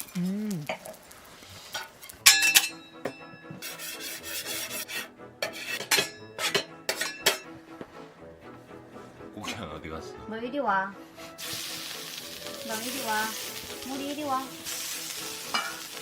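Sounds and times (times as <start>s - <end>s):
metal utensils clinking on dishes: 1.7s - 7.5s, 15.5s - 16.0s.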